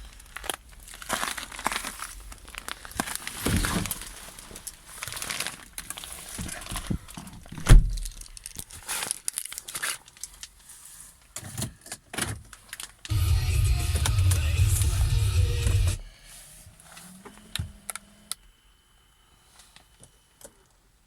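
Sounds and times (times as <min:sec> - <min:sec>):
crunching and rustling: 0:00.0 - 0:15.8.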